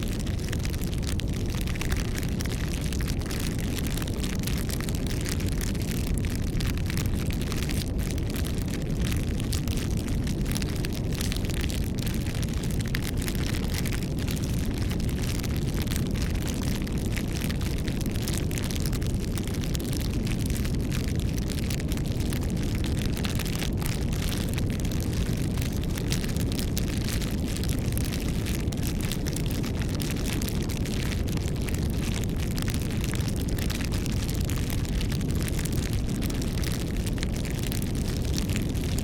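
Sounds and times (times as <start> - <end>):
fire crackling and popping: 0.0 - 39.0
fire rumbling: 0.0 - 39.0.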